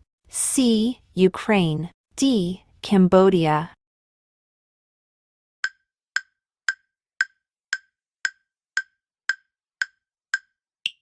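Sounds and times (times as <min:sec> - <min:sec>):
countdown timer ticks: 0:05.6 - 0:11.0.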